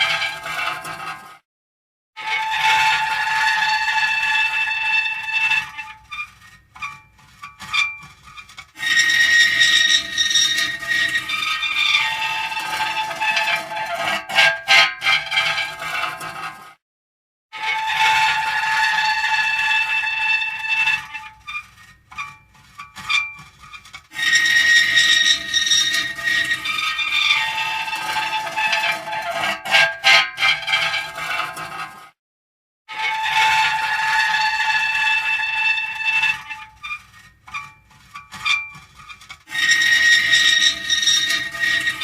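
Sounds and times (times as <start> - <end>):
metal creaking and squealing: 0.0 - 1.3, 2.2 - 16.6, 17.6 - 32.0, 32.9 - 42.0.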